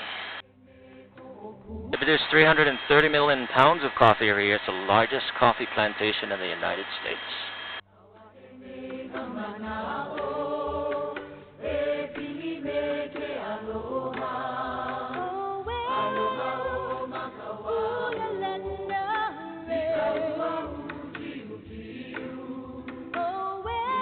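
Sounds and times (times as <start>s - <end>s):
choir singing a cappella: 0.4s - 3.4s, 7.9s - 24.0s.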